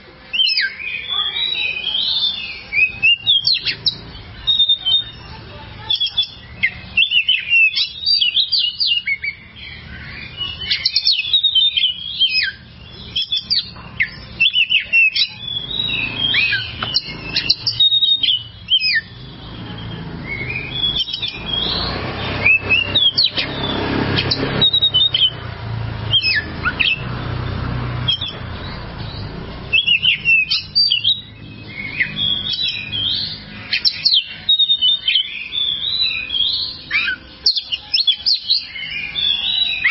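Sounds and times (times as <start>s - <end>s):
bird singing whistles and chirps: 0.3s - 25.4s, 26.0s - 39.9s.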